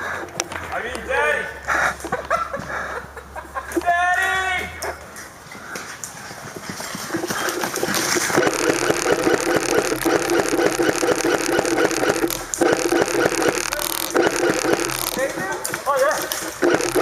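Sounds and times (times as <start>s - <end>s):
airsoft gun firing full auto: 8.2s - 15.6s, 16.5s - 17.0s
gearbox motor buzz: 8.2s - 15.7s, 16.3s - 17.0s.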